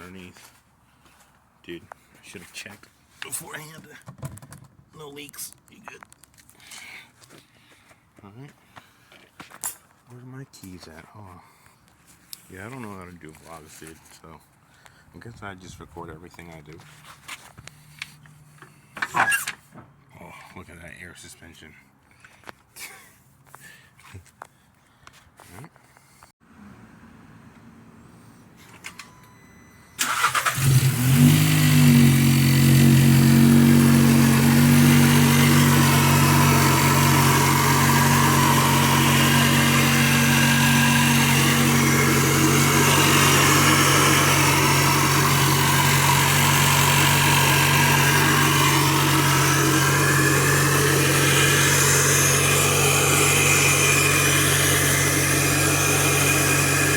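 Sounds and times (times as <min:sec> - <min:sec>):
car engine starting and idling: 0:28.8 - 0:56.9.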